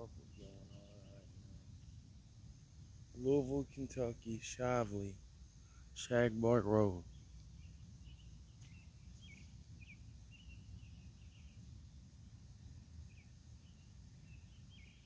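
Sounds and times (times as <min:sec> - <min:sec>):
steady low rumble: 0:00.0 - 0:08.3.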